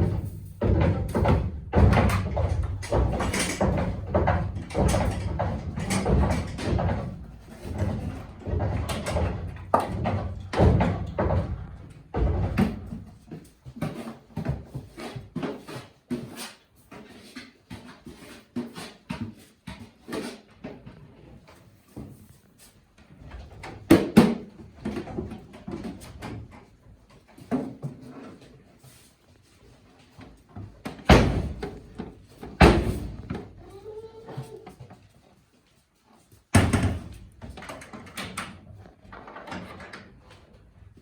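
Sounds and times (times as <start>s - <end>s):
irregular knocks and thumps: 0.0s - 14.8s, 30.8s - 33.7s.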